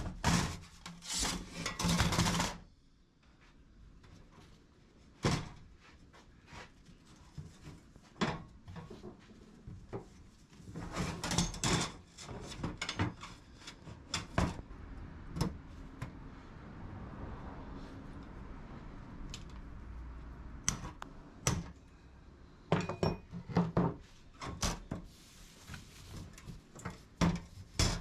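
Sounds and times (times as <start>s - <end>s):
objects knocking and clunking: 7.3s - 16.2s, 22.7s - 25.1s, 25.8s - 28.0s.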